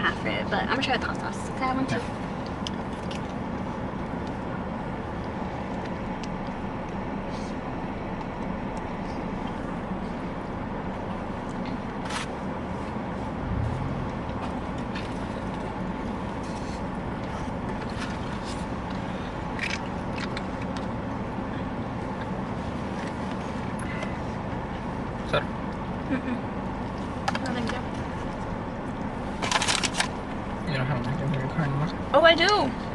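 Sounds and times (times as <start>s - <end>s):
car cabin hum: 0.1s - 25.4s.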